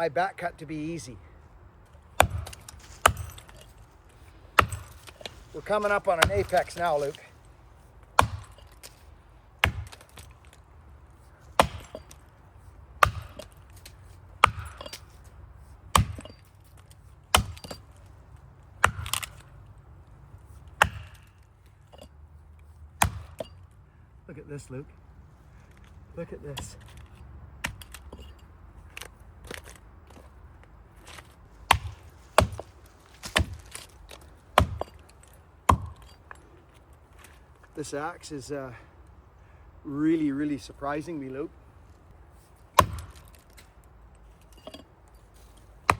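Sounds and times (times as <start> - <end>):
wood cracking: 1.9 - 12.4, 18.8 - 19.6, 28.9 - 37.4, 42.6 - 45.9
axe chopping wood: 2.1 - 7.2, 8.1 - 9.0, 9.6 - 10.6, 11.5 - 12.2, 13.0 - 15.2, 15.9 - 16.5, 17.3 - 18.0, 18.8 - 19.5, 20.7 - 21.4, 23.0 - 23.5, 27.6 - 28.2, 31.1 - 36.2, 42.7 - 43.7.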